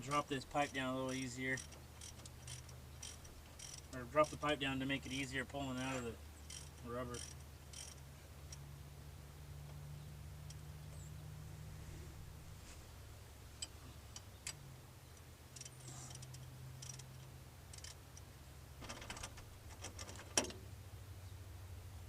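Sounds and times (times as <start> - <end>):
ratchet wrench clicking: 0.6 - 4.4, 6.5 - 8.6, 15.6 - 18.2.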